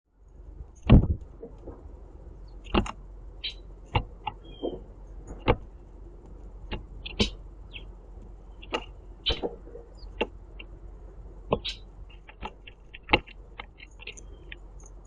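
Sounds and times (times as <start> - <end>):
thin bird whistle: 3.4 - 3.7, 4.4 - 4.8, 8.6 - 10.2
faint high bird chirps: 3.4 - 4.9, 7.0 - 10.2, 11.5 - 15.0.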